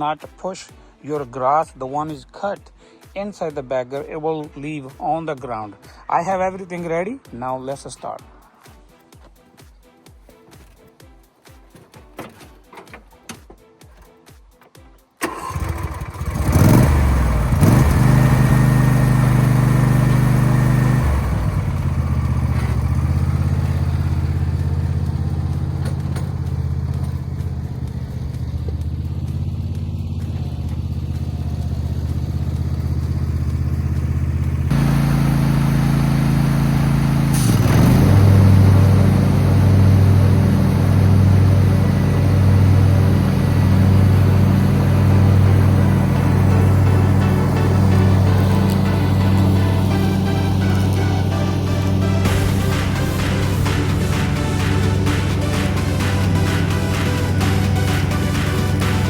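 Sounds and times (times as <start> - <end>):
lawn tractor engine running: 11.7 - 14.1, 15.2 - 59.0
pulsing engine throb: 15.2 - 59.0.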